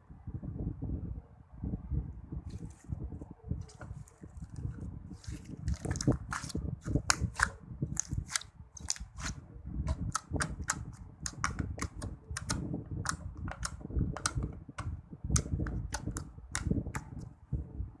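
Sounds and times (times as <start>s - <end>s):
slime squelching: 3.6s - 14.4s.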